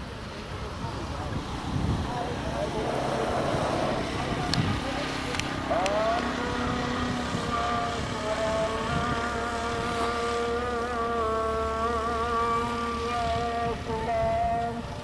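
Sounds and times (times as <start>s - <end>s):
train rumble: 0.6s - 14.8s.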